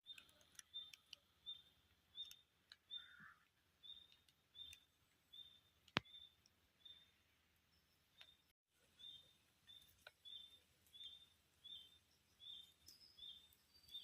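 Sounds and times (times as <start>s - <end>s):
small bird calling: 0.1s - 7.2s, 8.2s - 14.0s.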